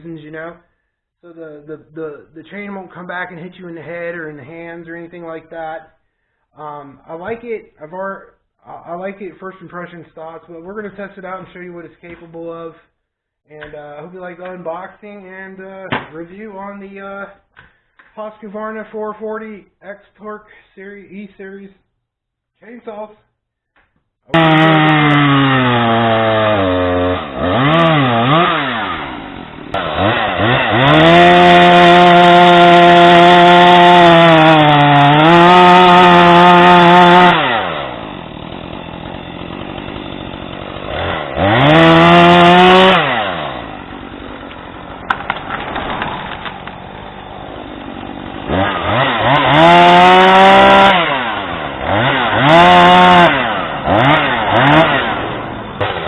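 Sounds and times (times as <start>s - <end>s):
chainsaw engine revving: 24.3s - 56.0s.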